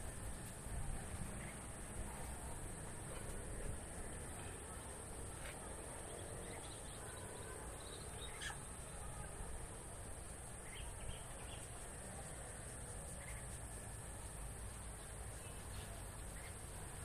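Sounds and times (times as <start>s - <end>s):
steady high-pitched hiss: 0.0s - 17.0s
faint bird calls: 5.4s - 9.4s.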